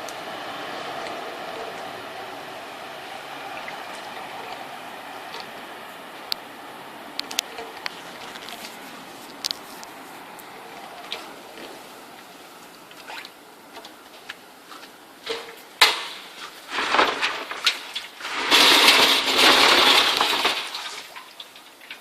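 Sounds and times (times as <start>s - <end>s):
industrial vacuum sucking debris: 16.0s - 21.3s.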